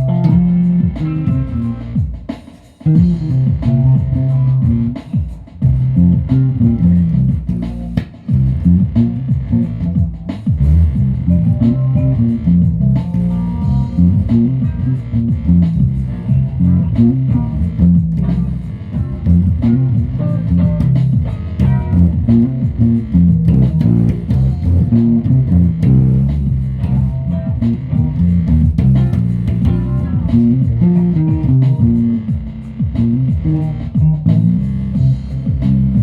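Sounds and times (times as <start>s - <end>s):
guitar and bass plucked notes: 0.0s - 36.0s.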